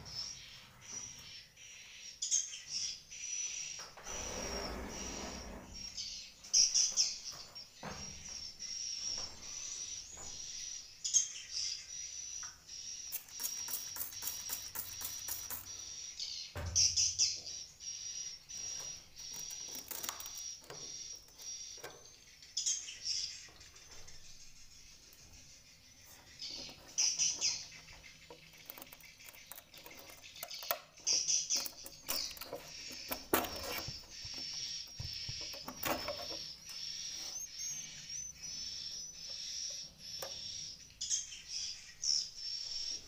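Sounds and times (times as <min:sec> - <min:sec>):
swiftlets twittering: 0:34.2 - 0:39.3.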